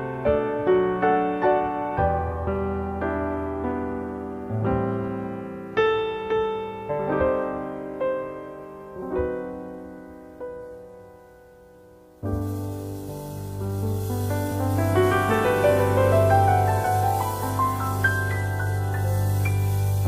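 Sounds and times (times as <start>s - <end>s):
slow solo piano: 0.0s - 20.0s
hiss: 12.0s - 20.0s.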